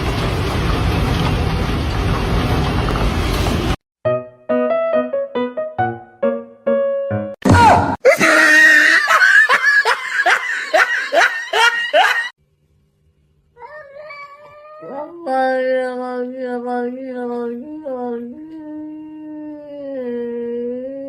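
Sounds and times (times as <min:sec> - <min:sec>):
cat yowling: 0:13.6 - 0:15.0.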